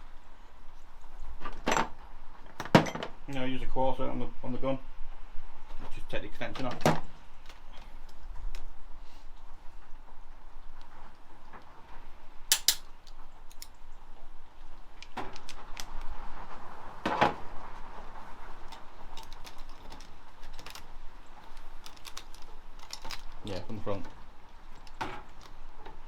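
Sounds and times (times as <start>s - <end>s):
hand tools clinking against metal: 12.5s - 12.9s.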